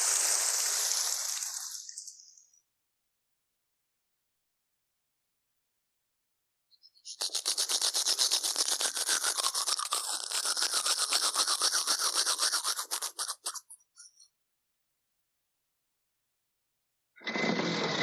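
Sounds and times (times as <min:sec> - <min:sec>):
rapid scrubbing: 0:07.1 - 0:13.8.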